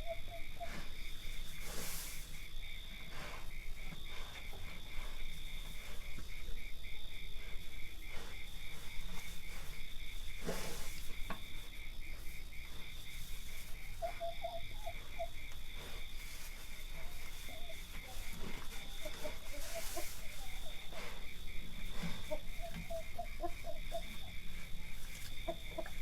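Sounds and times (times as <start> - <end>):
crickets chirping: 0.0 - 26.0
high insect trill: 0.0 - 26.0
cattle grazing crunches and rustles: 0.6 - 2.5, 7.6 - 26.0.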